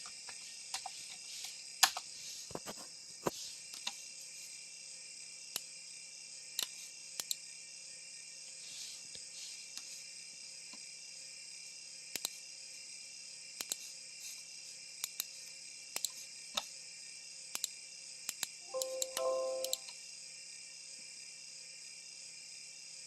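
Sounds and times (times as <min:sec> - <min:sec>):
high-pitched hiss: 0:18.6 - 0:19.9
tone stepping between pitches: 0:18.7 - 0:19.8.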